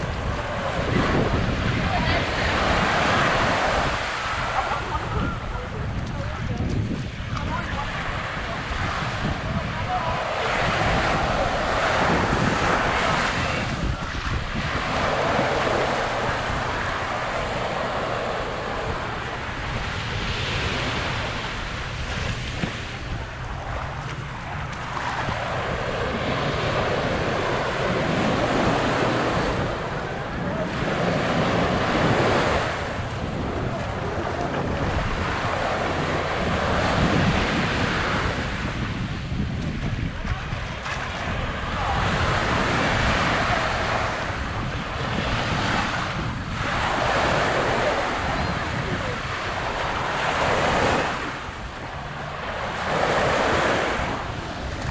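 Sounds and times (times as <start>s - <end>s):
small waves breaking on a beach: 0.0s - 54.9s
wind buffeting microphone: 0.0s - 54.9s.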